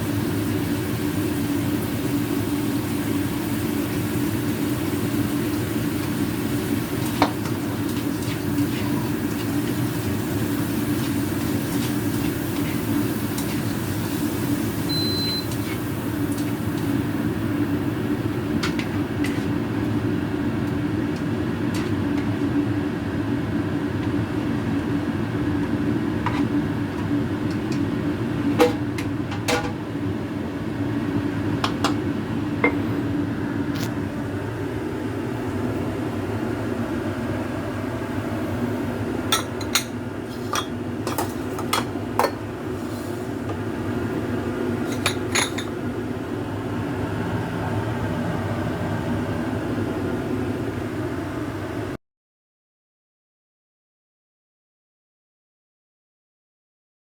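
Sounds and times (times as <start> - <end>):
low kitchen hum: 0.0 - 52.0
dishes and utensils clinking: 44.8 - 45.7.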